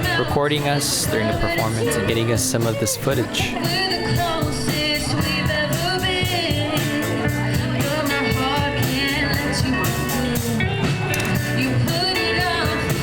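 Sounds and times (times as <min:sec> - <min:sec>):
person singing: 0:00.0 - 0:13.0.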